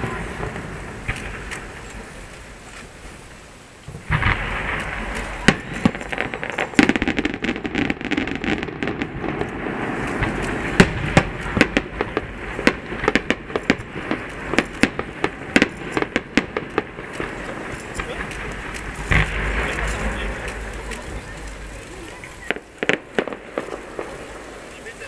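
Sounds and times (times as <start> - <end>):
firework crackling: 0.0 - 25.0
fireworks bursting with sharp bangs: 0.0 - 25.0
steady rumble: 8.6 - 24.7.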